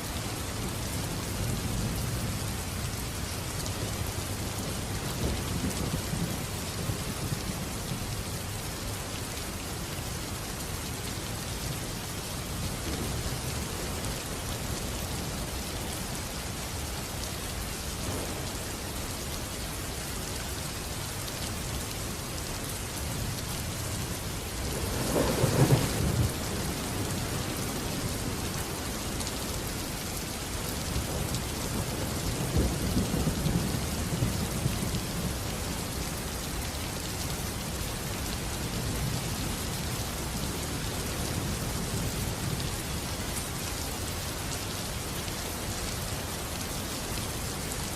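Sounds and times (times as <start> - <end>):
rain falling: 0.0 - 47.9
thunder crack and rumble: 24.6 - 29.3.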